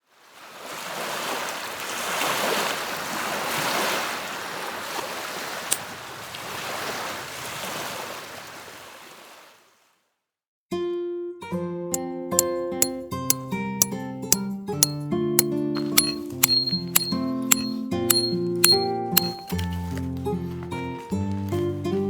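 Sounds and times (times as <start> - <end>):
sharp click: 12.4 - 13.0, 13.8 - 15.0, 15.8 - 19.6.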